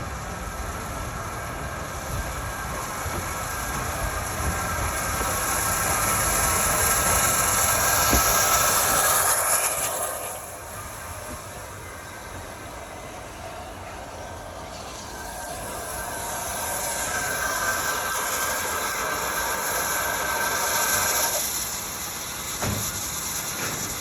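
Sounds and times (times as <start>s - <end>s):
steam hissing: 0.0s - 24.0s.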